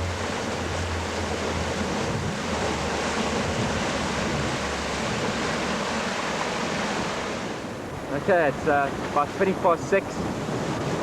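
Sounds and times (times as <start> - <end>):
low steady hum: 0.0 - 6.2
water rushing past yacht: 0.0 - 11.0
wind: 0.0 - 11.0.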